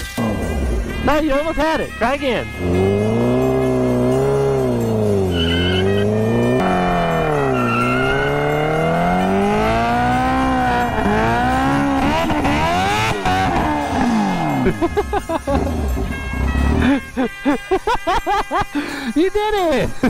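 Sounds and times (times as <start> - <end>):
tyre squeal: 2.0 - 11.2
engine revving hard: 2.4 - 17.0.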